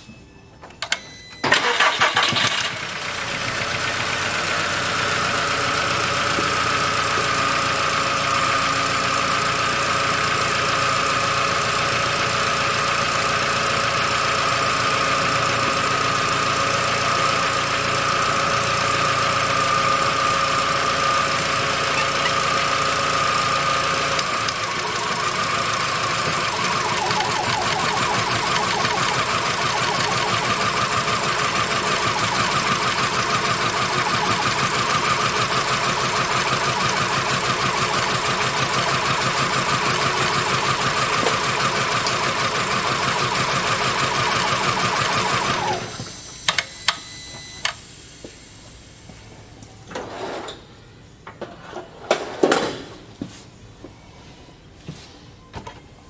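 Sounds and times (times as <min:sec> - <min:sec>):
car engine starting and running: 0:01.5 - 0:10.7, 0:13.2 - 0:46.2.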